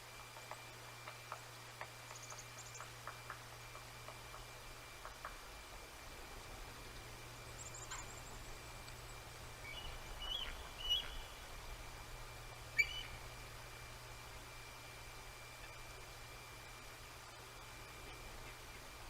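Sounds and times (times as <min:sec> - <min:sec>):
faint steady hum: 0:00.0 - 0:19.0
bird chirps and calls: 0:09.6 - 0:11.4, 0:12.8 - 0:13.2.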